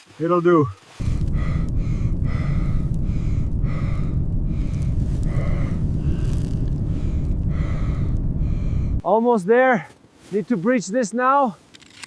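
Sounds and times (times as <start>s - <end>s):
blizzard wind rumble: 1.0s - 9.1s.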